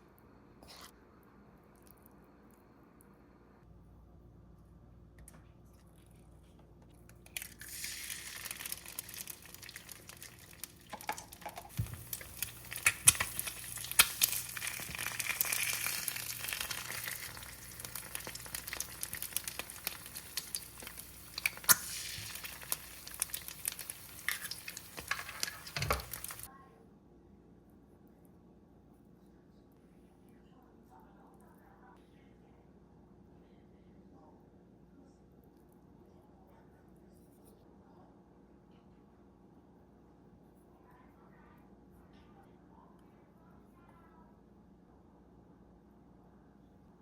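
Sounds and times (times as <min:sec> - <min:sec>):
food sizzling in a hot pan: 0:07.4 - 0:26.5.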